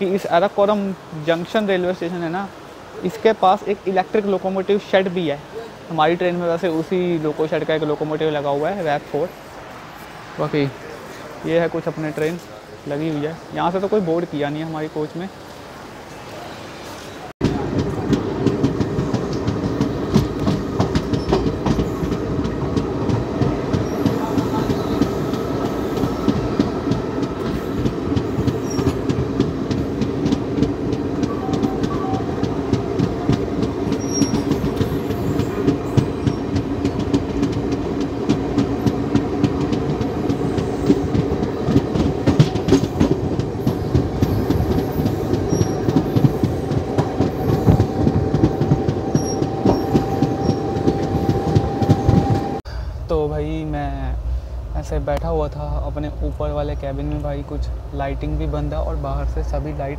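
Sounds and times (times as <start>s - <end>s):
train wheels rumbling on rails: 0.0s - 59.9s
clicks over rail joints: 26.0s - 52.6s.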